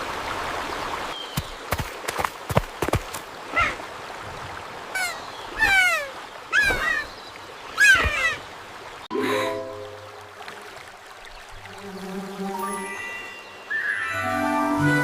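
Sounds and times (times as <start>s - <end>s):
animal calls falling in pitch: 7.8s - 8.4s
music: 12.5s - 15.0s.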